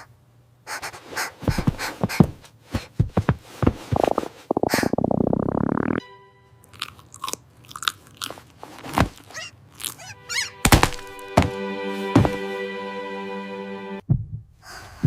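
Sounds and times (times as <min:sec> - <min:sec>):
ominous music chord: 0:06.0 - 0:07.0, 0:10.2 - 0:14.0
crunching and chewing: 0:06.7 - 0:11.2
heavy hits: 0:10.6 - 0:12.5.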